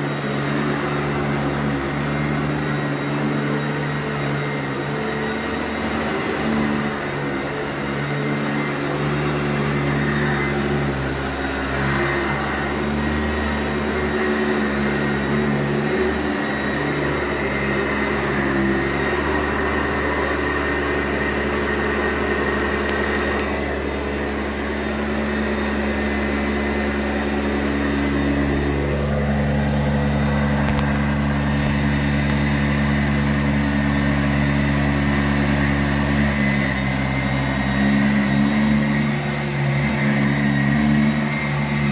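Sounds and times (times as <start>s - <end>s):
vacuum cleaner running: 0.0s - 41.9s.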